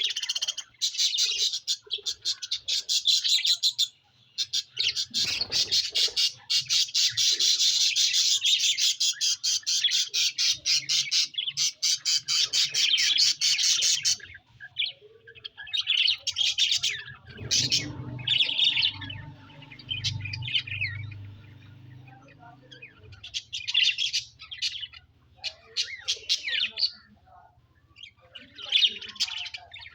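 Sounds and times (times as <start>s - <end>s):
budgerigar chirping: 0.0s - 14.4s
low hum: 17.2s - 23.3s.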